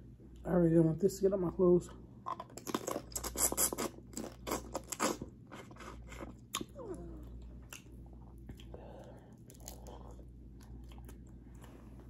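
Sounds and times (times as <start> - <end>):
wet chewing and lip-smacking: 2.2 - 11.8.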